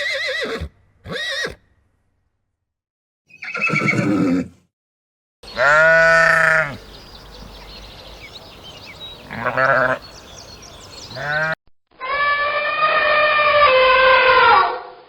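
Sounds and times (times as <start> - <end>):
sheep bleating: 5.5 - 6.8, 9.3 - 10.0, 11.2 - 14.5.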